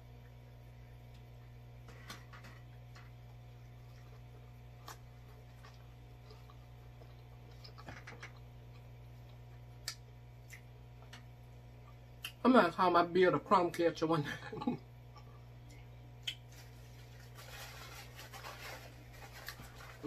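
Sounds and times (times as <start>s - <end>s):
steady low hum: 0.0s - 20.0s
biting and chewing food: 2.6s - 12.4s.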